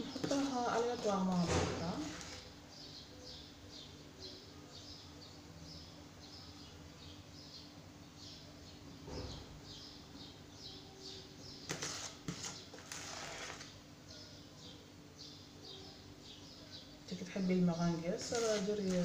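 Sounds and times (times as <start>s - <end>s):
metal spoon scraping a bowl: 0.0s - 2.5s, 11.6s - 13.7s, 18.2s - 19.0s.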